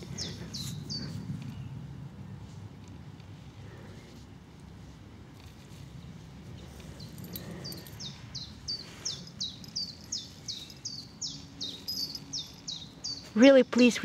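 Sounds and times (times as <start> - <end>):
bird chirping: 0.0 - 1.8, 6.0 - 14.0.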